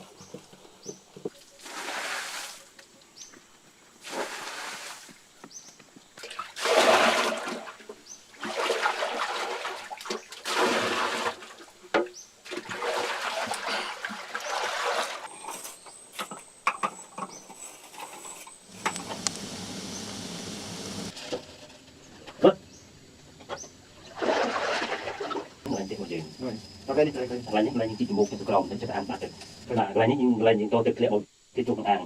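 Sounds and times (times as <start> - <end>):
water splashing: 6.2 - 15.3, 24.1 - 25.6.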